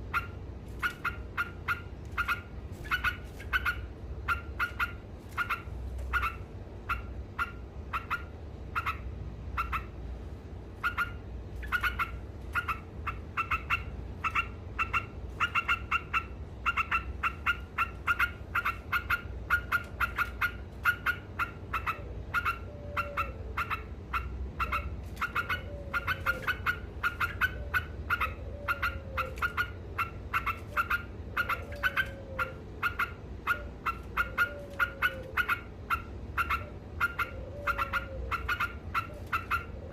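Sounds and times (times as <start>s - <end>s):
bulbul chattering call: 10.8s - 39.9s.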